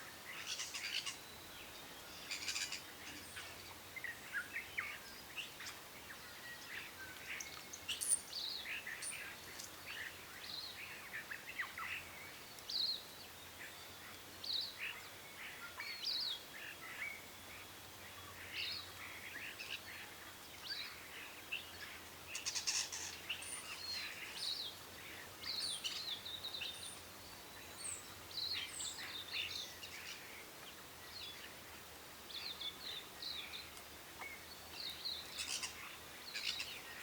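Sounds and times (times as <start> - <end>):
birds chirping and calling: 2.1 - 3.6, 21.8 - 24.6, 34.7 - 37.0.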